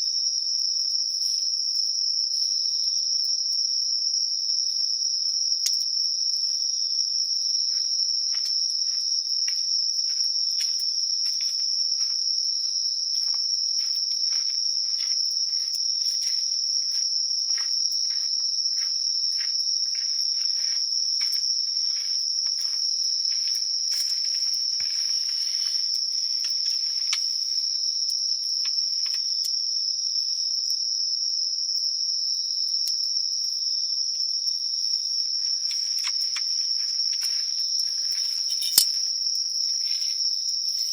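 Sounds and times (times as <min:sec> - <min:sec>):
insects high-pitched trill: 0:00.0 - 0:40.9
lower pulsing cricket chirp: 0:00.0 - 0:40.9.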